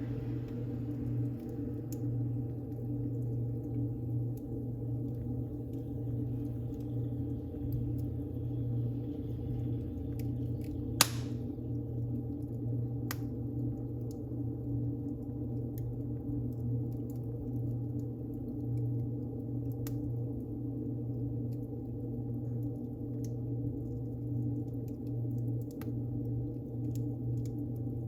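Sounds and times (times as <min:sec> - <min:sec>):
wood fire rumbling and crackling: 0:00.0 - 0:28.0
sharp pop of fire: 0:11.0 - 0:11.5.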